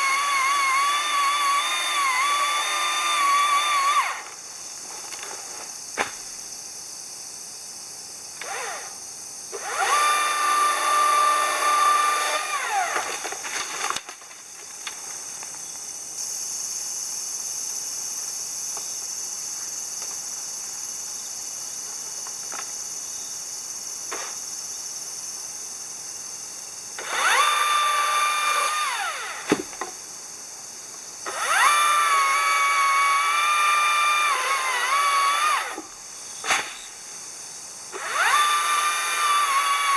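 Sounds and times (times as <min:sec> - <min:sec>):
small power tool motor: 0:00.0 - 0:04.4, 0:08.4 - 0:13.9, 0:27.0 - 0:29.6, 0:31.2 - 0:35.9, 0:37.9 - 0:39.9
steady high hiss: 0:13.4 - 0:27.0.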